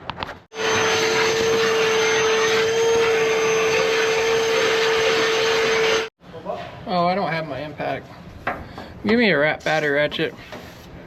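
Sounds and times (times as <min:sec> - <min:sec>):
vacuum cleaner running: 0:00.5 - 0:06.1.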